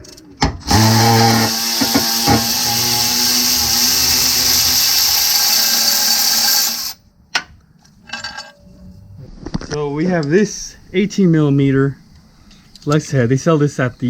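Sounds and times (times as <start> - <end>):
power tool motor whirring: 0.6 - 7.0.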